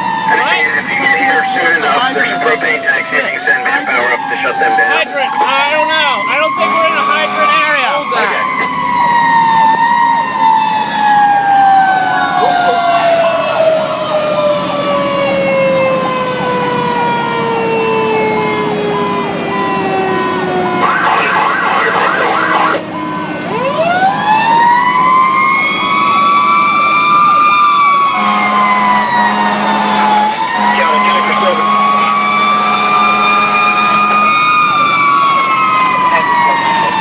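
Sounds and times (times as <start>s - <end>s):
fire engine siren wailing: 0.0s - 37.0s
low horn-like tone: 28.2s - 34.4s.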